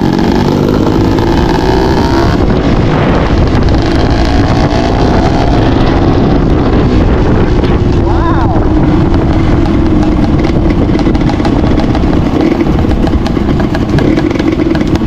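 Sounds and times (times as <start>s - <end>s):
dirt bike engine revving: 0.0s - 8.0s, 8.6s - 15.0s
wind noise on microphone: 0.0s - 15.0s.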